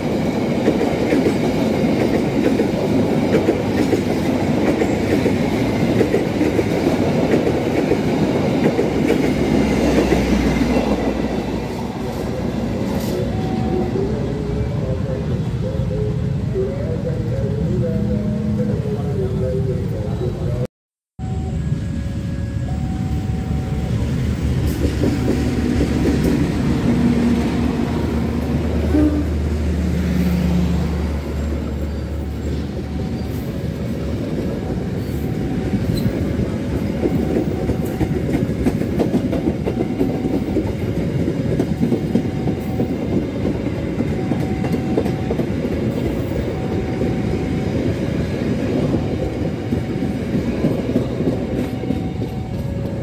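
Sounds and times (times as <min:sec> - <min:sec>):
train wheels clattering over rails: 0:00.0 - 0:11.8, 0:35.3 - 0:47.6
locomotive engine drone: 0:08.9 - 0:38.2.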